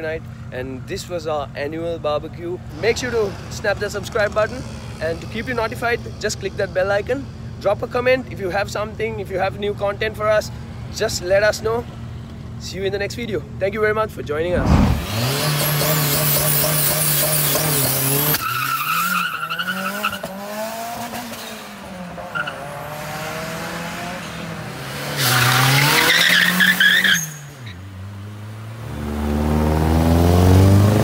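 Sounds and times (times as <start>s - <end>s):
car engines revving: 2.6s - 7.6s, 14.5s - 31.0s.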